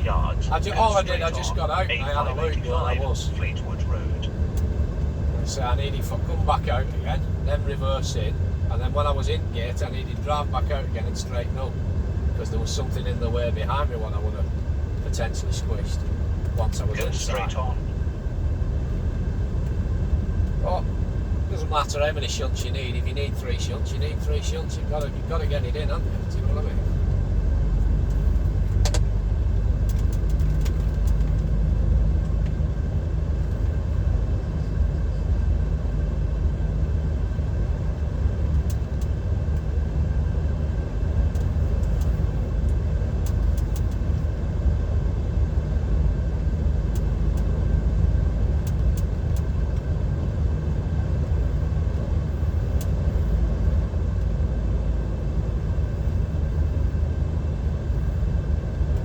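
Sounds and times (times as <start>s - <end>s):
tyre and road rumble: 0.0s - 21.8s
diesel engine drone: 0.0s - 59.0s.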